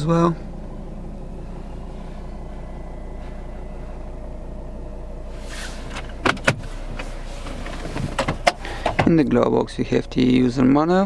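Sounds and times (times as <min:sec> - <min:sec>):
car engine idling: 0:00.0 - 0:11.0
faint rustle: 0:01.3 - 0:04.6, 0:05.2 - 0:09.0.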